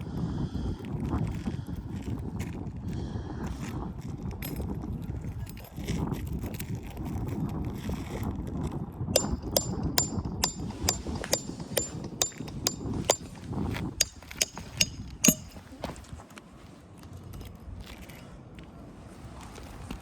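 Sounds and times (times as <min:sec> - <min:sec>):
hammer driving nails: 0:09.2 - 0:15.6.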